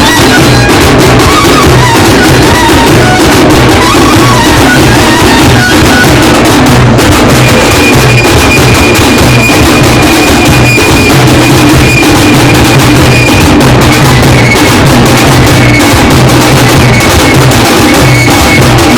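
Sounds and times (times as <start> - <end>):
loud fast drumming: 0.0 - 18.9.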